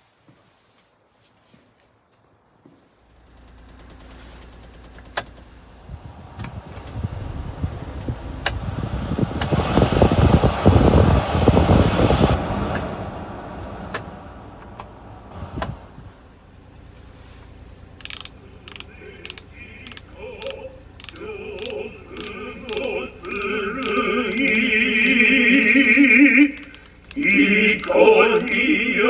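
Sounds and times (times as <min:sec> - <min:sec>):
small truck engine running: 0:03.0 - 0:29.0
sharp clicks: 0:06.4 - 0:07.0, 0:18.0 - 0:28.8.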